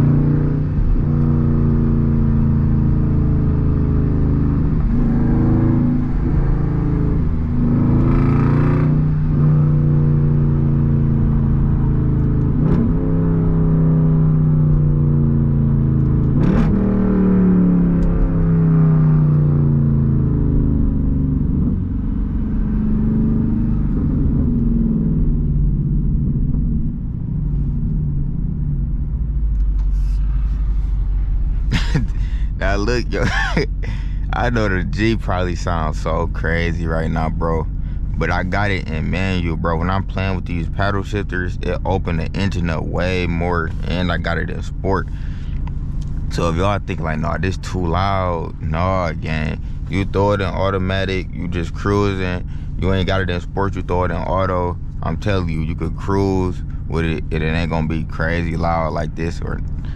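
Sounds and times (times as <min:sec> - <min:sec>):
car engine revving through gears: 0:00.0 - 0:59.9
exhaust cracks: 0:00.0 - 0:59.9
person speaking: 0:31.7 - 0:45.2, 0:46.3 - 0:59.6.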